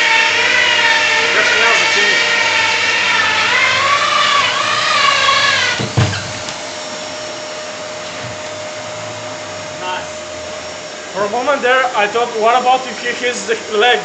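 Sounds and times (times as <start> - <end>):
electric drill whining: 0.0 - 11.2
knock: 5.8 - 6.4.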